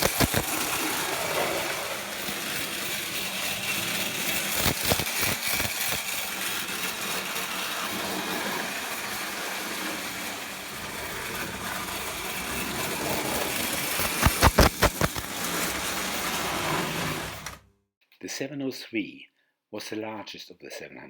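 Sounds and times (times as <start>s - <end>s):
toy train clicks: 0.0s - 16.8s
toy train motor whir: 0.0s - 17.6s.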